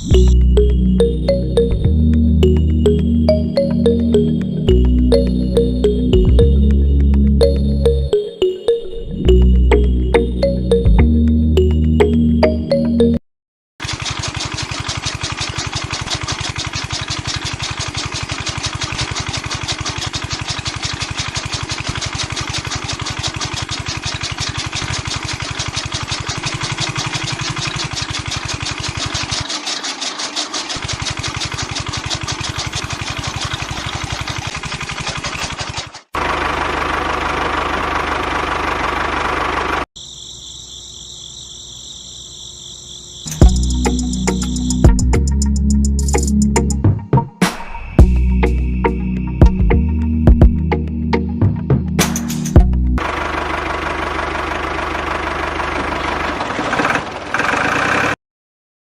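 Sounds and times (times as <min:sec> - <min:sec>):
small machine rattling: 0:13.8 - 0:39.8.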